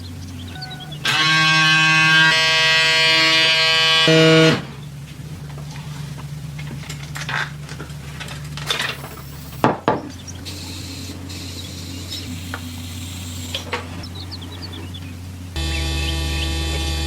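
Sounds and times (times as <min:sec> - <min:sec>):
steady low hum: 0:00.0 - 0:17.0
sharp knocks: 0:08.8 - 0:10.2.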